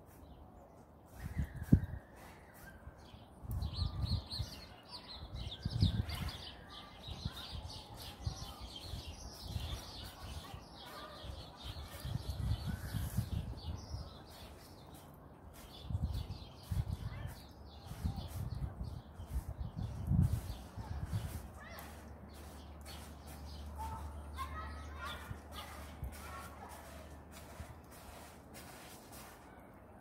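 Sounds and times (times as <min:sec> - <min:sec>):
small birds chirping: 0:00.0 - 0:29.6.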